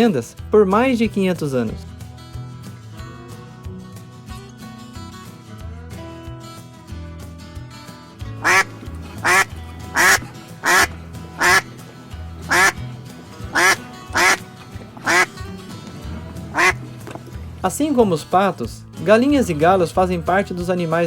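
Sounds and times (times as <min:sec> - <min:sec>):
background music with bass line: 0:00.4 - 0:21.0
duck quacking: 0:08.4 - 0:11.7, 0:12.5 - 0:12.8, 0:13.5 - 0:15.3, 0:16.5 - 0:16.8.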